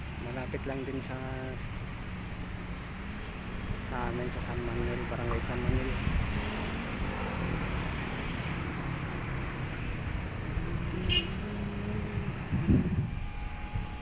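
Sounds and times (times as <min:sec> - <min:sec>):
road and wind noise: 0:00.0 - 0:14.0.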